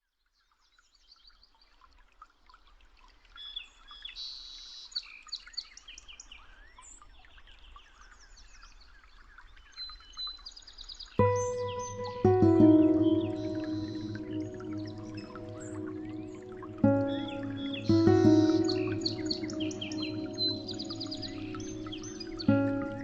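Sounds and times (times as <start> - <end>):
small birds chirping: 7.6 - 23.0.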